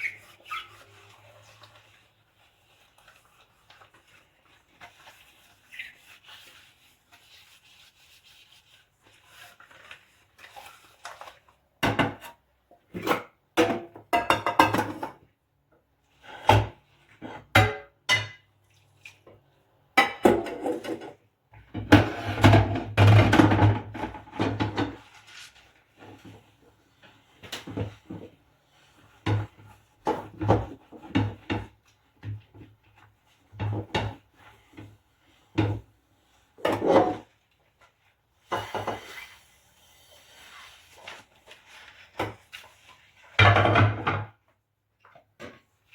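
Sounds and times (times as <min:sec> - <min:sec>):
dishes clinking and clattering: 0:13.6 - 0:15.2.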